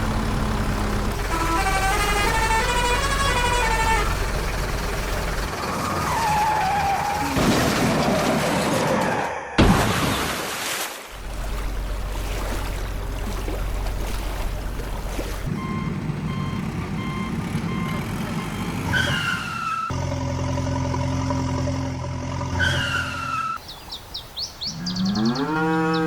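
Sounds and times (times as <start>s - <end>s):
truck engine rumbling: 0.0s - 9.2s, 11.1s - 23.6s
short falling squeal: 1.2s - 7.4s, 18.5s - 20.0s, 22.5s - 23.6s
reversing beeps: 15.6s - 19.2s.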